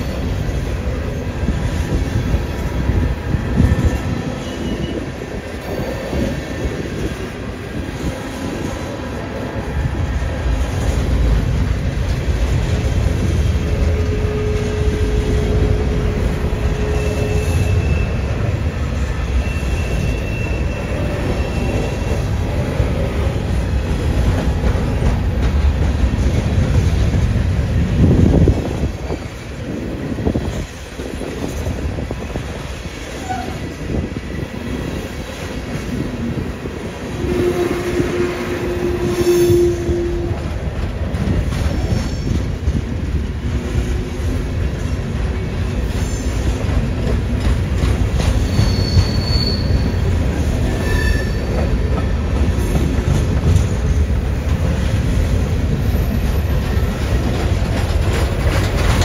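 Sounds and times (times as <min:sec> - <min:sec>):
freight train rumbling past: 0:00.0 - 0:59.0
train wheels squealing: 0:03.4 - 0:06.7, 0:13.9 - 0:22.5, 0:33.1 - 0:33.8, 0:48.2 - 0:52.0.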